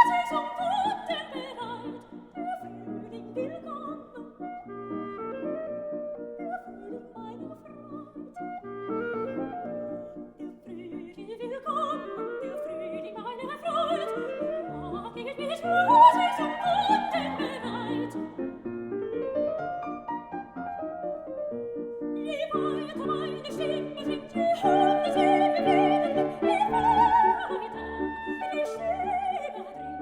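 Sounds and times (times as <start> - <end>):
soprano singing: 0.0 - 30.0
piano arpeggios: 11.7 - 30.0.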